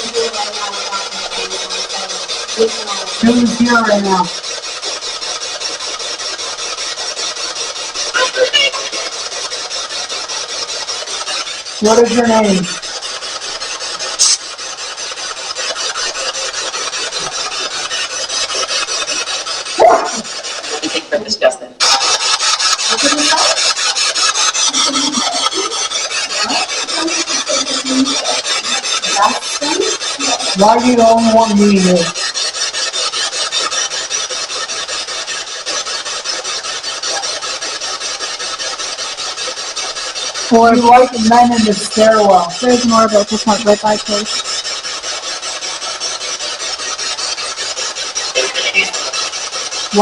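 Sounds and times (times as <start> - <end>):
pulsing radio static: 0.0 - 4.4, 8.1 - 9.2, 19.8 - 25.7, 40.5 - 44.3, 48.3 - 49.2
chopped radio static hiss: 8.1 - 9.1, 48.3 - 49.2.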